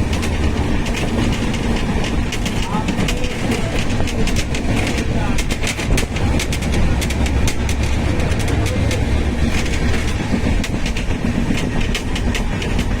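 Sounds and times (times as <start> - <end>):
sharp clicks of train wheels: 0.0 - 13.0
train wheels rumbling on rails: 0.0 - 13.0.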